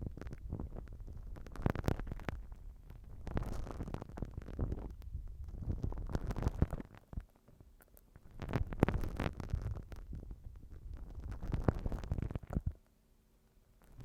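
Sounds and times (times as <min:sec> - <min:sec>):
slime crackling and squishing: 0:00.0 - 0:12.8.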